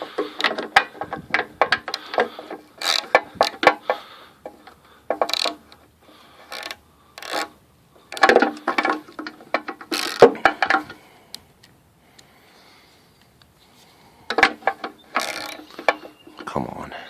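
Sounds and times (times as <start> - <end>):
ratchet wrench clicking: 2.8 - 3.1, 5.2 - 5.6, 6.4 - 7.5, 15.2 - 15.9.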